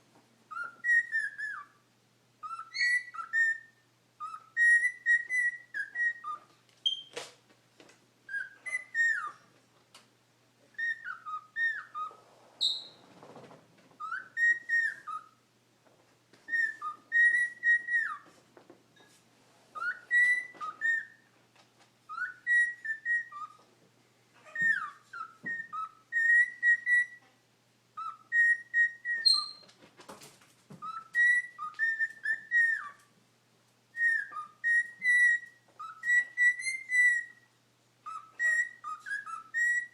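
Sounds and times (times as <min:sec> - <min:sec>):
cockatiel whistling: 0:00.5 - 0:01.8, 0:02.4 - 0:07.2, 0:08.3 - 0:09.5, 0:10.7 - 0:13.0, 0:14.0 - 0:15.4, 0:16.5 - 0:18.3, 0:19.7 - 0:21.3, 0:22.1 - 0:23.7, 0:24.4 - 0:27.3, 0:28.0 - 0:29.7, 0:30.8 - 0:33.1, 0:33.9 - 0:39.9
faint clicks and rustles: 0:06.2 - 0:10.9, 0:12.0 - 0:15.0, 0:15.8 - 0:22.4, 0:29.4 - 0:33.8.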